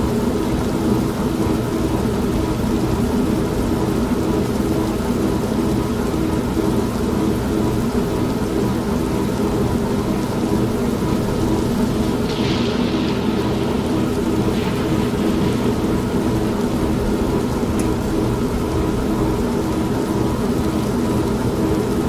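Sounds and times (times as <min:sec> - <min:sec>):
washing machine motor hum: 0:00.7 - 0:22.0
rain falling: 0:08.2 - 0:22.0
low rumble: 0:11.2 - 0:20.1.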